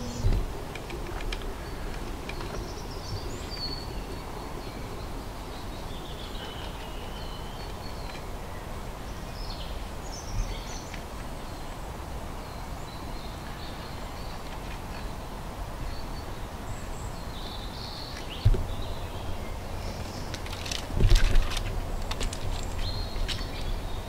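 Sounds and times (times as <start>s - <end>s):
background hiss and rumble: 0.0s - 24.0s
small birds chirping: 0.0s - 24.0s
low thump: 18.4s - 18.8s.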